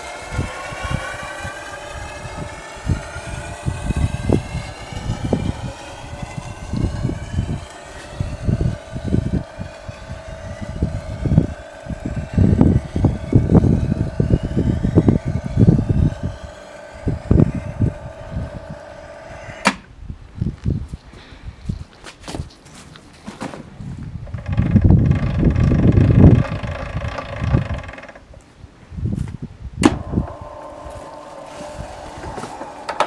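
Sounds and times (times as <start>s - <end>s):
low thumps: 0.0s - 19.9s
pipe bender motor whine: 0.0s - 20.0s, 24.0s - 28.4s, 29.8s - 33.0s.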